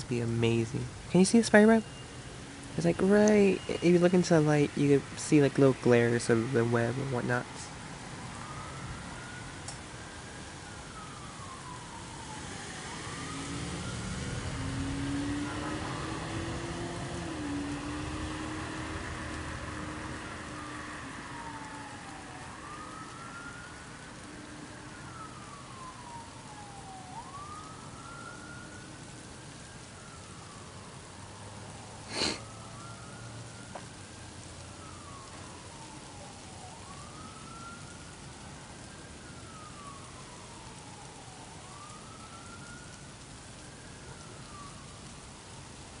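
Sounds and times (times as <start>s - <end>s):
distant siren wailing: 0.0s - 46.0s
rain hissing: 0.0s - 46.0s
vehicle passing: 11.4s - 23.7s.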